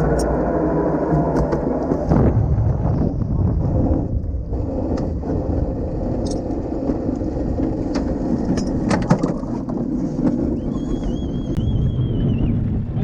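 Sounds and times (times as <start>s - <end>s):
glider wheel rumbling over ground: 0.0s - 13.0s
wavering whistle-like tone: 10.5s - 12.7s.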